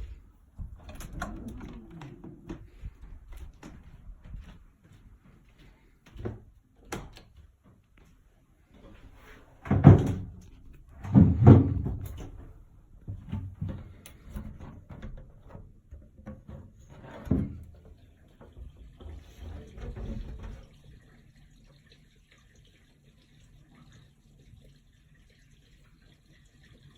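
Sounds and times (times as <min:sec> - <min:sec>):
drain pipe knocking and thudding: 0:00.0 - 0:04.6, 0:08.8 - 0:21.0.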